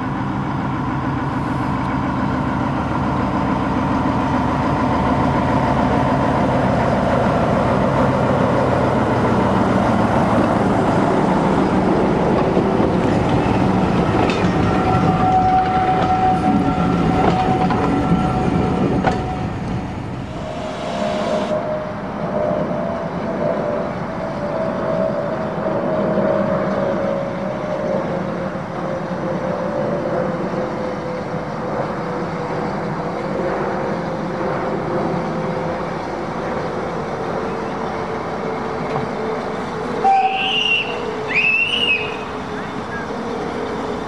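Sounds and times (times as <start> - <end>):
steam locomotive approaching: 0.0 - 44.0
train wheels clattering: 12.2 - 19.4.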